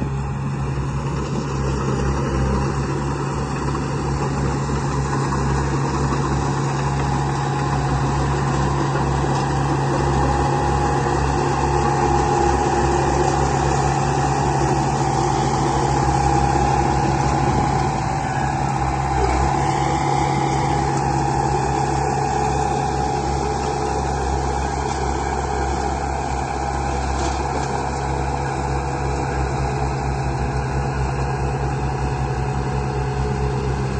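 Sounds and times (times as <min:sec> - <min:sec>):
construction vehicle engine idling: 0:00.0 - 0:33.9.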